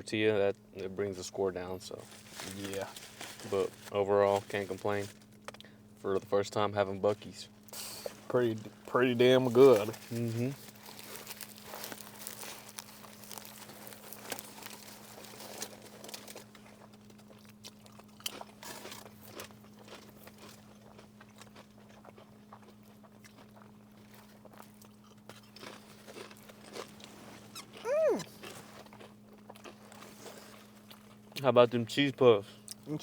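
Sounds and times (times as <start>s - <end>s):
steady low hum: 0.0s - 17.5s
chewing and crunching food: 0.5s - 33.0s
person humming mm: 27.8s - 28.3s.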